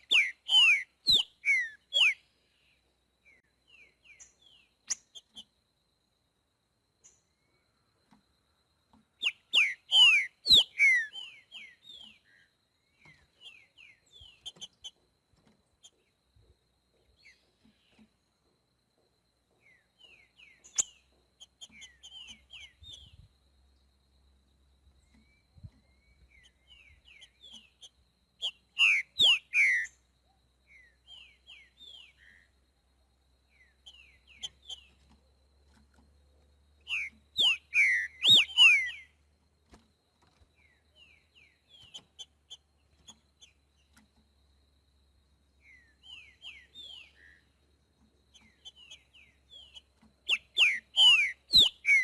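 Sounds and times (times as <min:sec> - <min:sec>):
bird singing whistled phrases: 0:00.0 - 0:02.2, 0:09.2 - 0:12.1, 0:28.4 - 0:29.9, 0:36.9 - 0:39.1, 0:48.7 - 0:52.0
soft scattered bird notes: 0:00.0 - 0:52.0.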